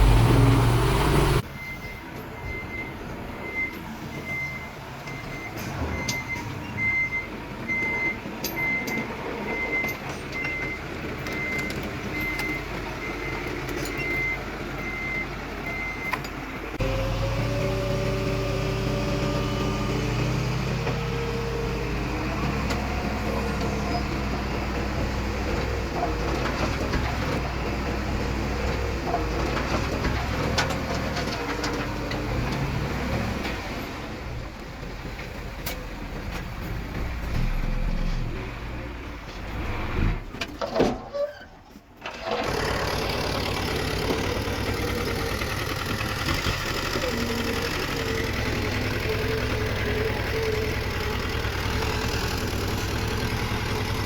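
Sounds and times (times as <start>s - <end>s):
reversing alarm beeping: 0.0s - 16.2s
diesel engine of heavy machinery: 0.0s - 40.8s, 41.6s - 54.0s
diesel engine working under load: 0.0s - 54.0s.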